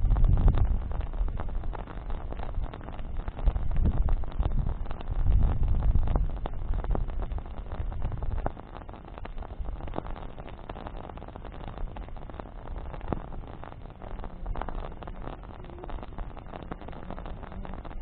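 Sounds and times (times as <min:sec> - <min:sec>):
low rumble: 0:00.0 - 0:10.5
campfire crackling and popping: 0:00.0 - 0:18.0.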